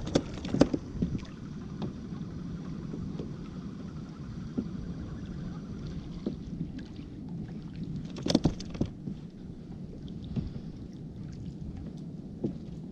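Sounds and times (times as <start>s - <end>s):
sharp knocks on hull: 0.0s - 1.2s, 8.0s - 9.0s
water sloshing against kayak: 0.0s - 12.9s.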